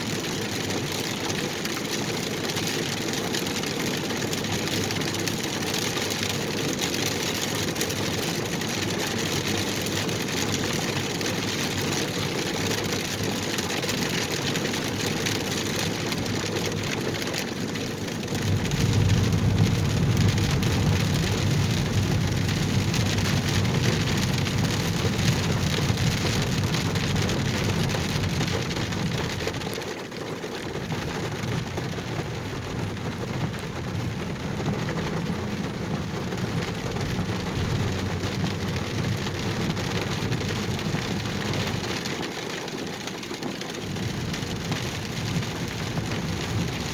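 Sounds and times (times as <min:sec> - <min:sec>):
rain falling on a car: 0:00.0 - 0:46.9
deep low rumble: 0:18.4 - 0:29.5, 0:30.9 - 0:41.8.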